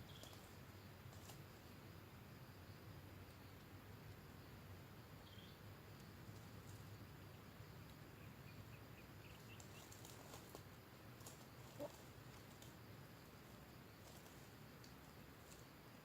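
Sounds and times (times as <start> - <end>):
faint clicks: 14.0 - 15.7.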